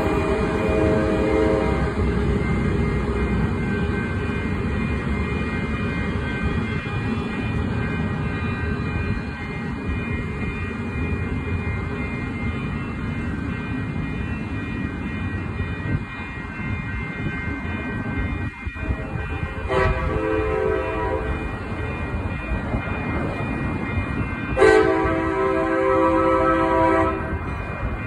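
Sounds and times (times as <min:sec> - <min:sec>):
train rumbling on tracks: 0:00.0 - 0:28.0.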